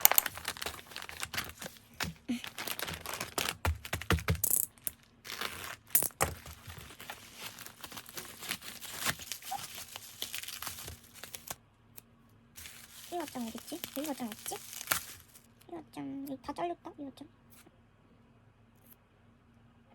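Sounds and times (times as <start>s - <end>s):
packaging crinkling and rustling: 0.0s - 11.6s, 12.6s - 15.6s
packaging ripping: 0.0s - 11.6s, 12.6s - 15.5s.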